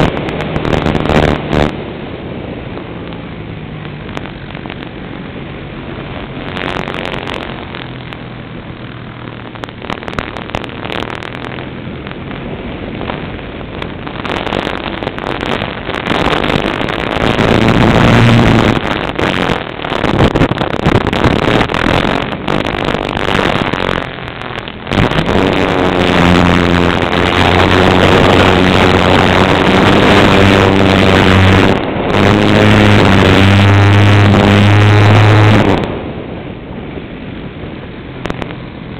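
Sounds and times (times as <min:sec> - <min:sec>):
light aircraft engine drone: 0:00.0 - 0:38.9.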